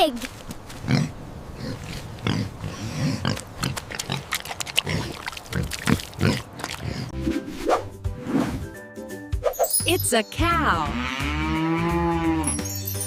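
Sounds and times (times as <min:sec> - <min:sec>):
pig grunting: 0:00.8 - 0:07.2.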